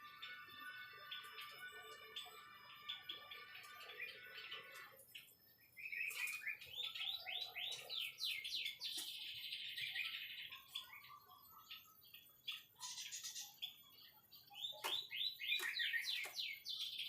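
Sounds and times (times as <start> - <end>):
bird singing: 0.0 - 17.0.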